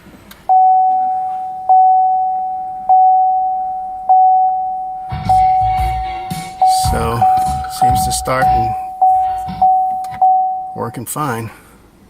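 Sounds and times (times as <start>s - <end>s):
bell-like warning chime: 6.6s - 10.8s.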